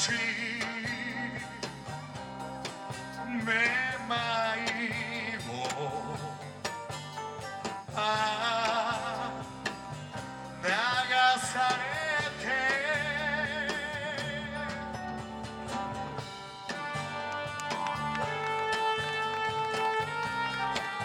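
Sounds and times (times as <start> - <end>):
rock band playing live: 0.0 - 21.0
wavering held lead notes: 13.2 - 21.0.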